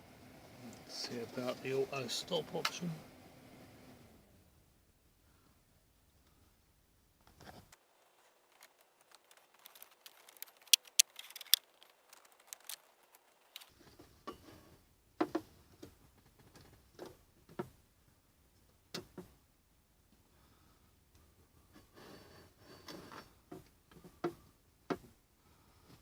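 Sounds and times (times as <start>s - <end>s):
sharp clicks of objects handled: 8.5s - 13.7s.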